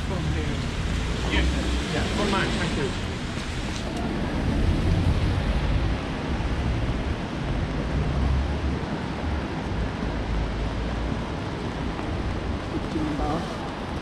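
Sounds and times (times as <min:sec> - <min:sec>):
rain on a wet street: 0:00.0 - 0:14.0
wind buffeting microphone: 0:03.0 - 0:14.0.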